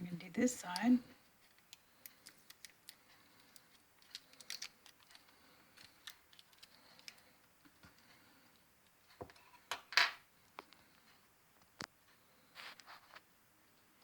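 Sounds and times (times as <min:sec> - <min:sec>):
faint steady hum: 0:00.0 - 0:14.0
plastic parts clicking: 0:01.5 - 0:07.2.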